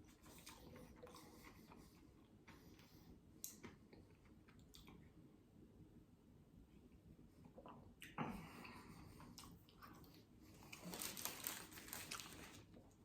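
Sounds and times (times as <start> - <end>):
person chewing crispy food: 0.0 - 5.0, 9.1 - 13.0.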